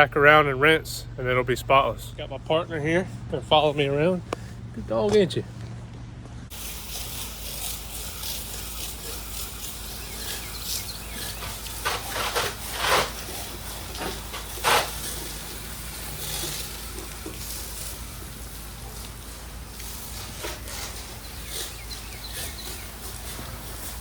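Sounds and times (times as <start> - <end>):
low machine hum: 0.0 - 24.0
pressure washer spray hissing: 6.5 - 24.0.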